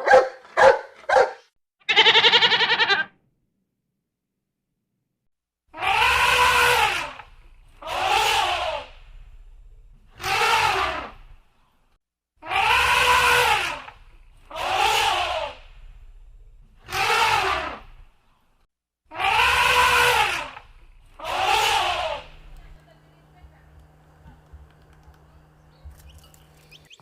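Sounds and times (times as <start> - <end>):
cat meowing loudly: 1.9 - 3.1, 19.1 - 20.3, 21.2 - 22.3.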